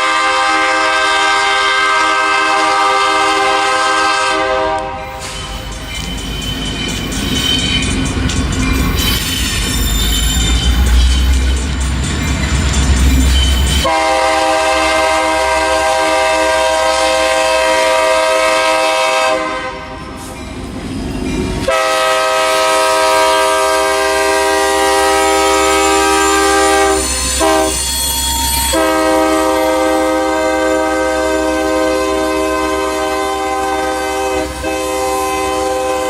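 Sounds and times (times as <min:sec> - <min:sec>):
locomotive air horn blasts: 0:00.0 - 0:05.2, 0:13.8 - 0:20.0, 0:21.6 - 0:27.9, 0:28.7 - 0:36.0
train rumble: 0:00.0 - 0:36.0.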